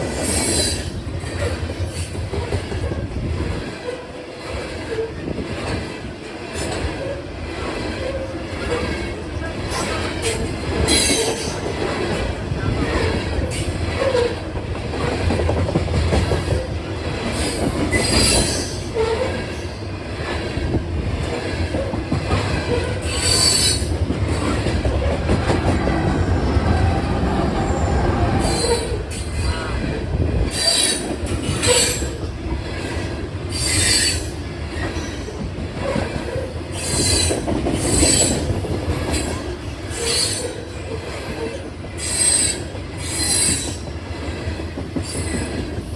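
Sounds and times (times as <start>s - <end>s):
train wheels screeching: 0.0s - 5.7s, 6.5s - 20.7s, 21.3s - 45.9s
train cars rumbling on rails: 0.0s - 45.9s.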